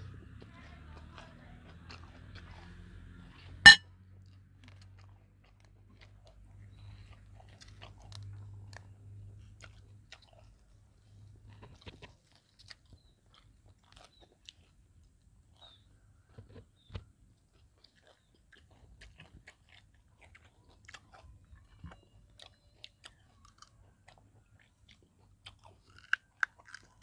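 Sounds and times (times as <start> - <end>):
person chewing crunchy food: 4.6 - 27.0.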